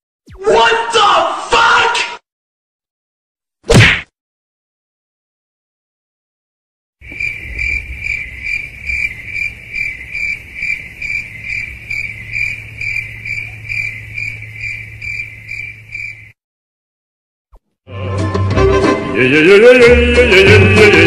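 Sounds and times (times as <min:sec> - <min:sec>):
cricket chirping: 0:07.0 - 0:16.4.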